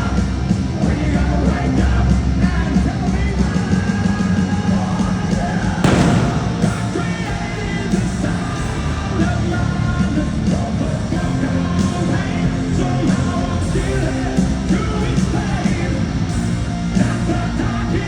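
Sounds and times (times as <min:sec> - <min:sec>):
loud crash: 0:05.8 - 0:07.5.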